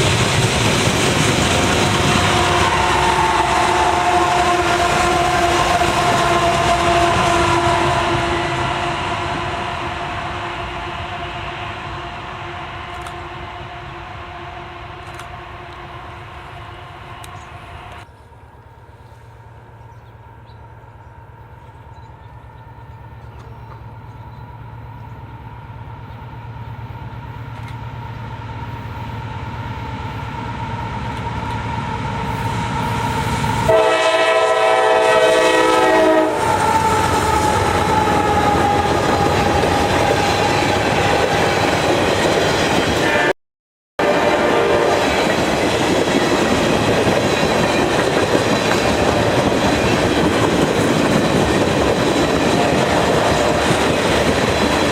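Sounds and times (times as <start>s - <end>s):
train wheels rumbling on rail: 0.0s - 43.3s, 44.0s - 54.9s
train horn blast: 1.6s - 18.0s, 32.3s - 42.2s, 43.0s - 43.4s, 44.0s - 45.4s.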